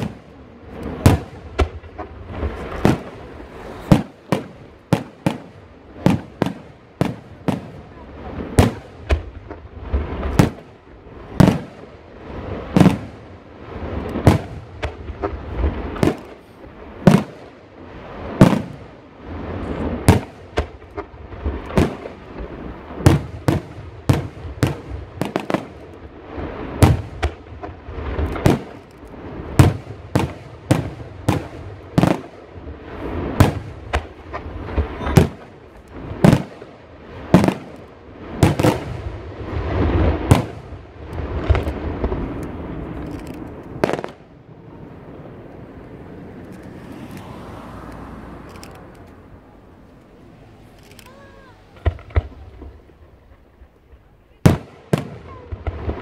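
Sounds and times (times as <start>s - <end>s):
firework shells bursting: 39.8s - 44.3s.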